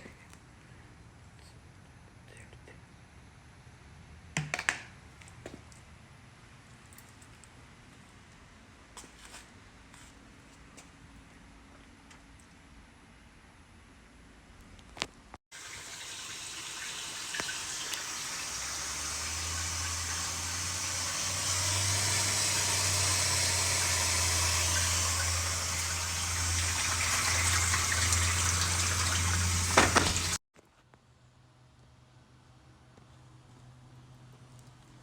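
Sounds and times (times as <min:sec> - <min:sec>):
water gushing into washing machine: 0:15.5 - 0:30.4.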